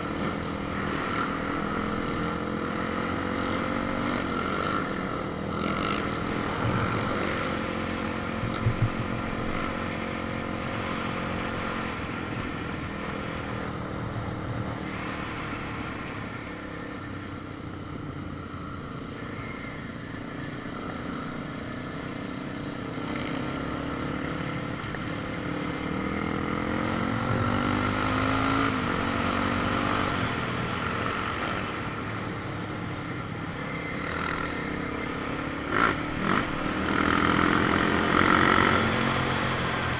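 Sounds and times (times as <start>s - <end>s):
vehicle engine running: 24.7s - 39.9s.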